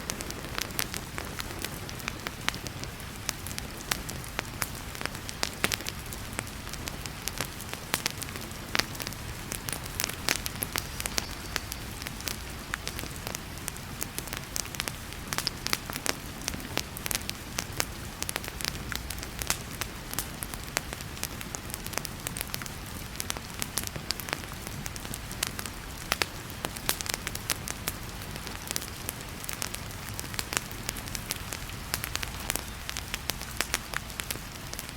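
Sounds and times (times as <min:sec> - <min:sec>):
heavy rain hissing: 0:00.0 - 0:34.9
wood fire crackling: 0:00.0 - 0:34.9.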